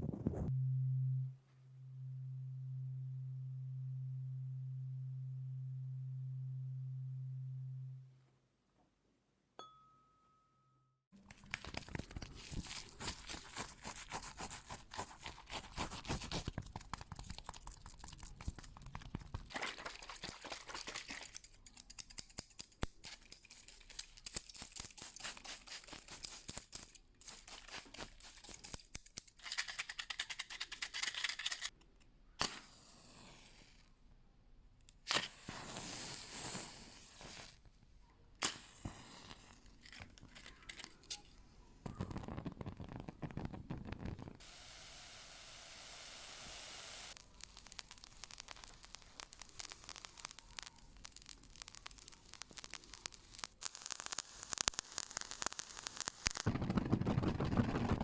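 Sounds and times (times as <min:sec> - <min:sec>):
low hum: 0:00.0 - 0:08.7.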